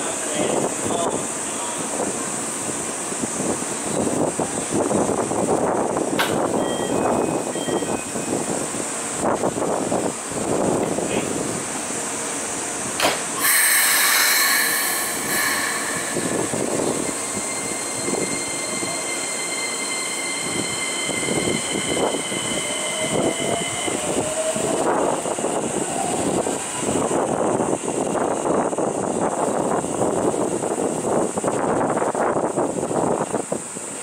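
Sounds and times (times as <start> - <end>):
train running noise: 0.0 - 34.0
train doors shutting click: 6.1 - 8.0, 12.9 - 17.2
air hiss: 13.4 - 19.7
steady high-pitched tones: 13.4 - 25.5.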